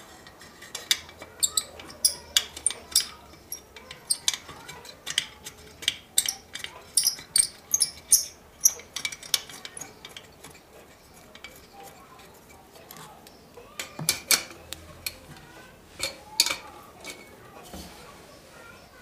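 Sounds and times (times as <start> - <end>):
metal tools clinking: 0.2 - 13.0.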